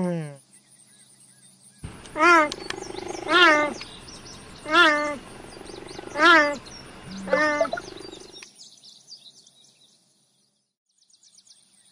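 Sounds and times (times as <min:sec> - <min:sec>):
cheetah chirping calls: 0:01.8 - 0:08.4
koala falling call: 0:01.8 - 0:08.4.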